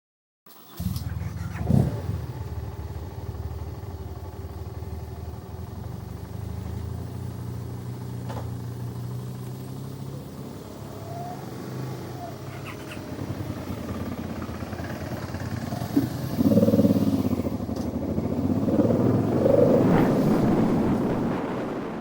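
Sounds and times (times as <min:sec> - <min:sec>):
motorcycle engine revving: 0:00.8 - 0:22.0
motorcycle engine idling: 0:02.2 - 0:09.1, 0:12.2 - 0:18.9.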